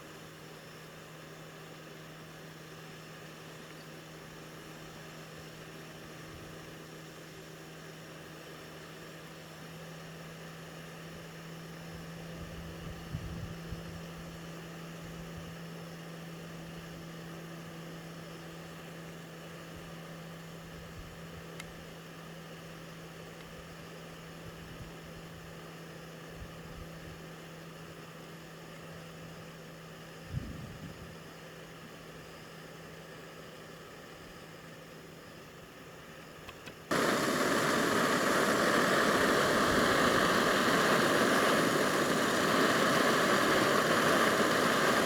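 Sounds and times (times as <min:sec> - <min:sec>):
soft hiss: 0:31.3 - 0:45.0
low engine hum: 0:36.9 - 0:45.0.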